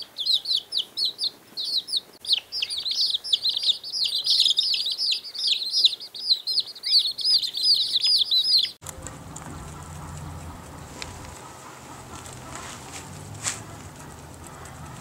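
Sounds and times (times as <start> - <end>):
birds chirping in chorus: 0.0 - 15.0
low steady rumble: 8.8 - 15.0.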